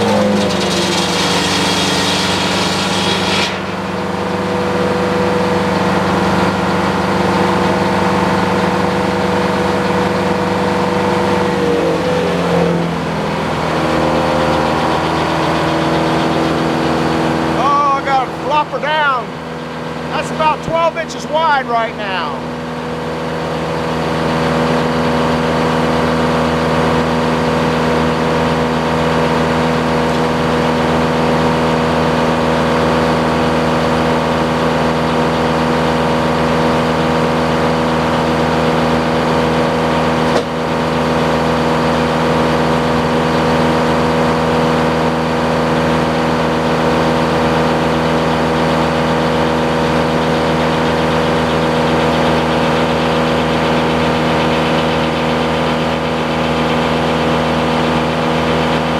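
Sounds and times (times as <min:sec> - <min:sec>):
saw blade cutting log: 0:00.0 - 0:04.6
sawmill engine running: 0:00.0 - 0:58.9.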